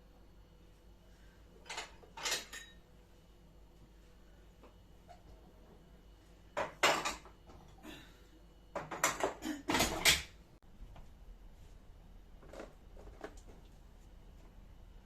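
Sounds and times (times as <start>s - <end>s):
dishes clattering: 1.6s - 2.8s, 6.6s - 7.4s, 8.7s - 10.3s.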